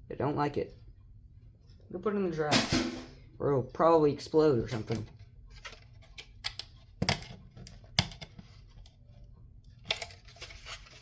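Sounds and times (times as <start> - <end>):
clicks and knocks of parts handled: 4.8 - 9.0, 9.7 - 11.0.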